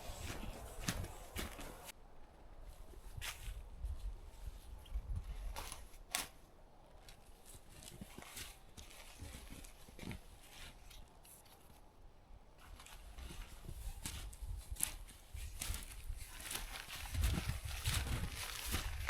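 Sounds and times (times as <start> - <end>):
footsteps crunching in snow: 0.0 - 1.9, 12.6 - 19.0.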